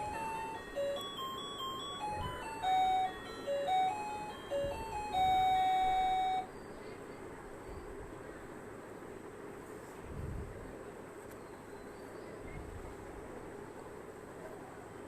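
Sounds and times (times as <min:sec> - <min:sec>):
electronic beeping jingle: 0:00.0 - 0:06.5
faint background hiss: 0:00.0 - 0:15.0.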